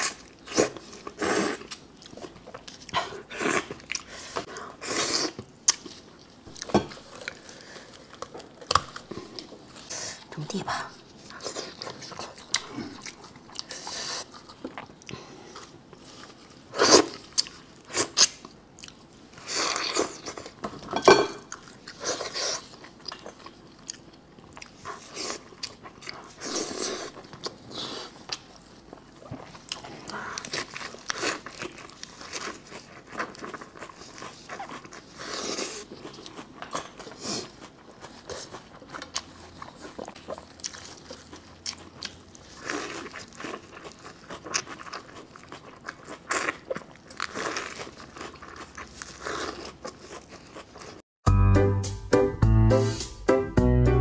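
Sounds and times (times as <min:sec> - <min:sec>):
wet chewing and biting: 0:21.5 - 0:51.0.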